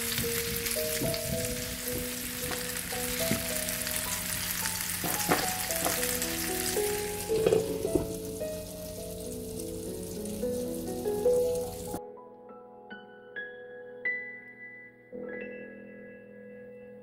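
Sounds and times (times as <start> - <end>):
caramel sizzling in frying pan: 0.0 - 12.0.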